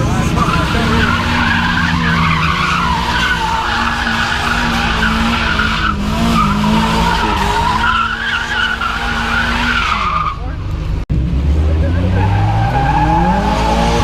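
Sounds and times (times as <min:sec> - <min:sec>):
tyres squealing: 0:00.0 - 0:10.7
car engine revving high: 0:00.0 - 0:14.0.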